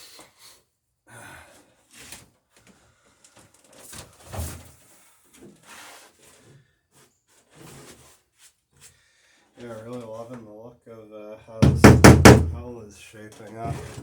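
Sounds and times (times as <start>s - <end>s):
handling knocks and scrapes: 13.4s - 14.0s.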